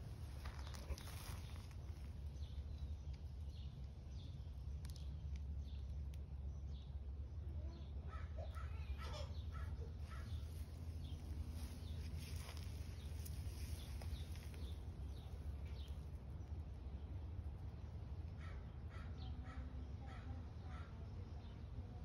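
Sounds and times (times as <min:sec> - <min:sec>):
birds calling: 0:00.0 - 0:05.9, 0:07.6 - 0:16.2
steady low rumble: 0:00.0 - 0:22.0.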